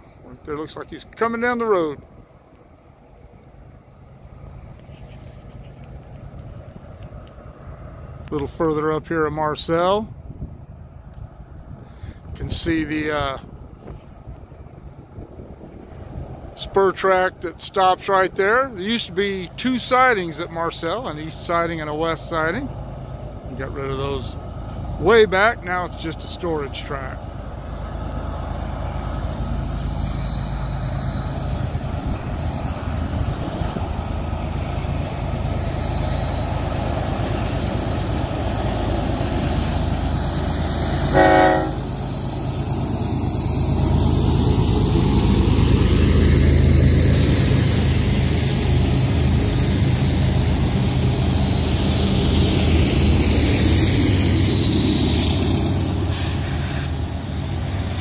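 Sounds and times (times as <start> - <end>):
diesel locomotive engine drone: 0.0 - 58.0
high-pitched squeal: 25.0 - 58.0
train horn toot: 40.9 - 42.0.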